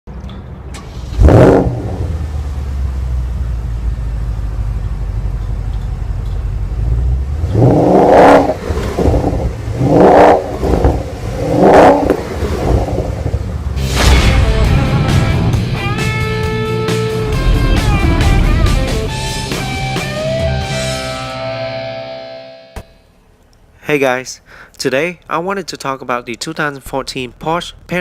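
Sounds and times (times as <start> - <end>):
car engine starting: 0.1 - 22.2
car engine idling: 0.2 - 21.2
car engine revving: 0.7 - 5.3, 6.5 - 21.8.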